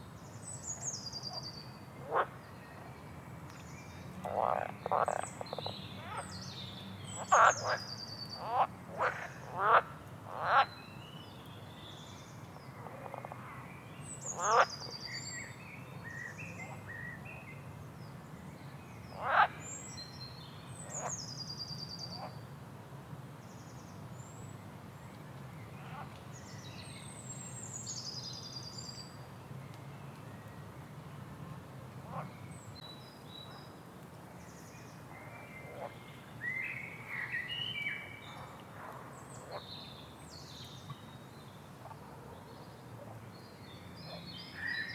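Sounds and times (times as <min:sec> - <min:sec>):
frogs croaking: 0:04.2 - 0:05.7, 0:07.2 - 0:10.7, 0:14.3 - 0:14.7.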